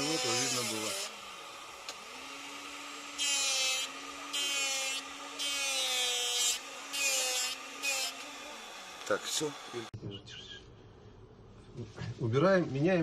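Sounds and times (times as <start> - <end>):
hand file rasping on metal: 0.0 - 1.1
small vacuum humming: 0.0 - 9.9.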